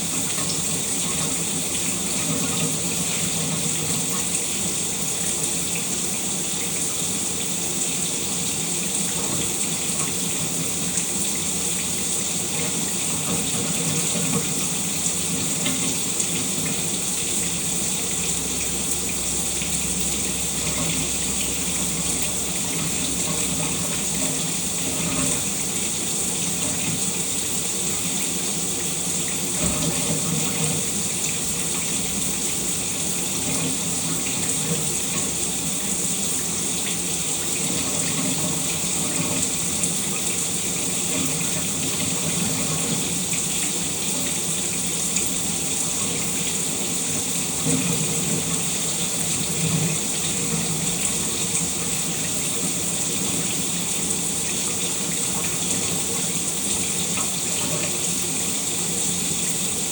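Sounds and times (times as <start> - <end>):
shower water running: 0.0 - 59.9.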